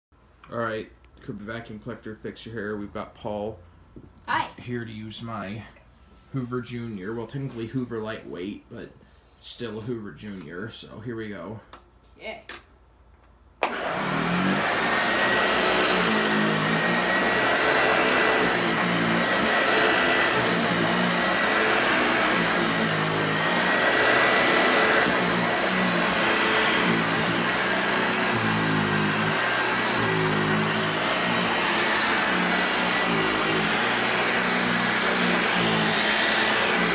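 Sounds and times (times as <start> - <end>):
upright vacuum cleaner running: 13.6 - 36.9.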